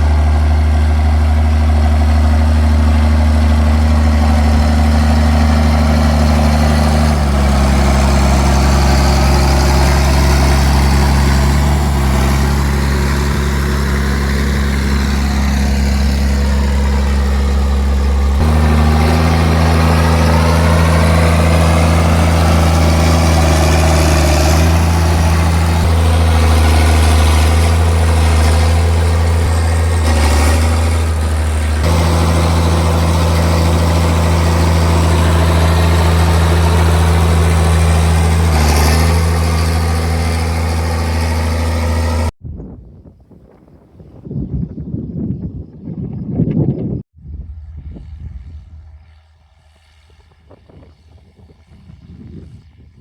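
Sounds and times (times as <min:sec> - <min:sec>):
tractor diesel engine running: 0:00.0 - 0:42.4.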